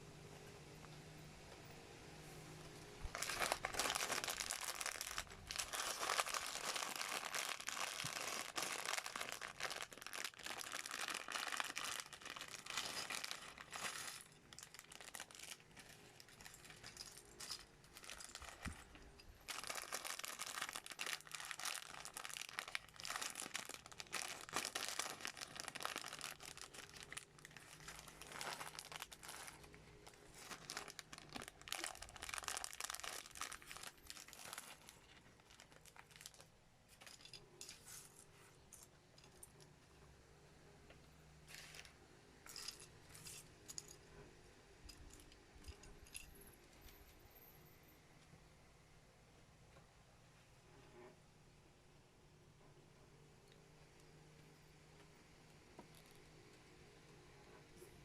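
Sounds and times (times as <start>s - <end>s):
plastic crinkling and rustling: 3.0s - 39.7s, 41.4s - 44.0s.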